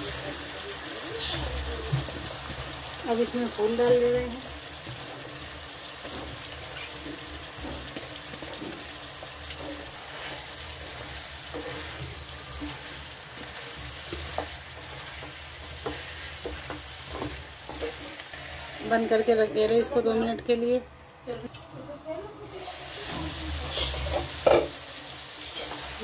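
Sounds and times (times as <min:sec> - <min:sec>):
vegetables sizzling in a frying pan: 0:00.0 - 0:26.0
wooden spatula scraping a pan: 0:04.8 - 0:19.8, 0:22.6 - 0:26.0.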